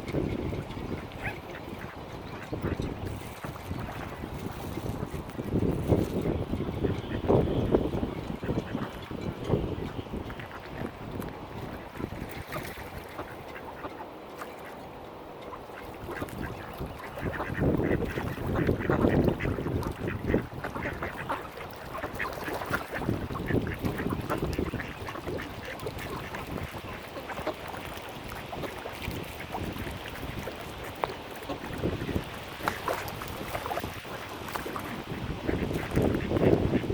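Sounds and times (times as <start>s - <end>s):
water noise: 0.0s - 36.9s
wind: 0.0s - 36.9s
ducks quacking: 15.5s - 32.0s, 32.6s - 36.9s.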